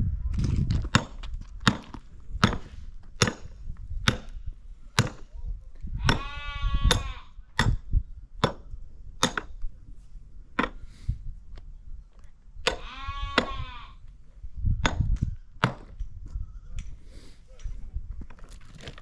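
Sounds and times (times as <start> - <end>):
sheep bleating: 6.1 - 7.4, 12.8 - 14.0.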